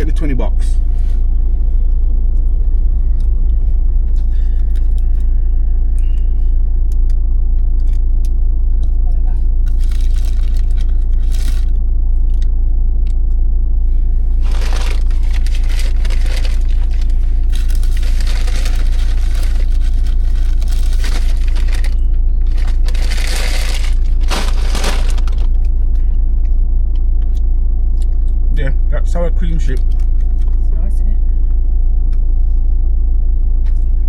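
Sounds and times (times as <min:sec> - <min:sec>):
vehicle cabin rumble: 0:00.0 - 0:34.0
paper bag rustling: 0:14.4 - 0:25.7.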